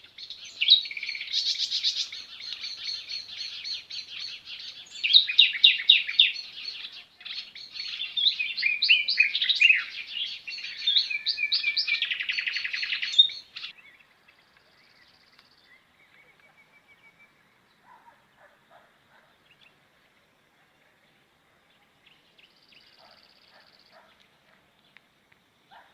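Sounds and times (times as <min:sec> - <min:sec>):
songbirds chirping and twittering: 0:00.0 - 0:25.9.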